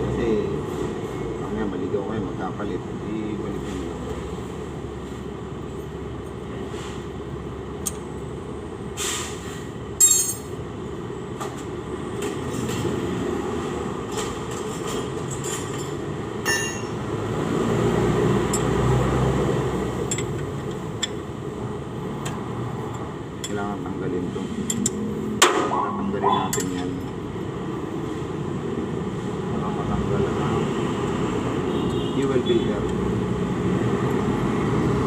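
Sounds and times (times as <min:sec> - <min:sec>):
sharp metallic clinks: 0:10.0 - 0:10.6, 0:16.4 - 0:17.0.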